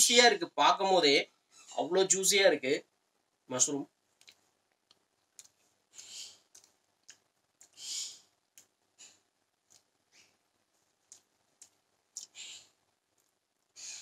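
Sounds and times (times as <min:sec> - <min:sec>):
wet mouth clicks and smacks: 0:04.2 - 0:05.6, 0:06.5 - 0:07.8, 0:09.6 - 0:09.9, 0:11.0 - 0:12.4
person chewing spaghetti: 0:04.2 - 0:07.8, 0:11.0 - 0:12.5.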